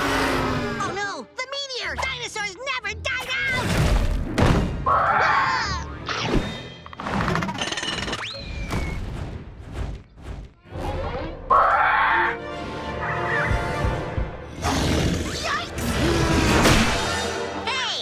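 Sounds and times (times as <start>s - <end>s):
thuds and crashes: 3.6s - 4.8s.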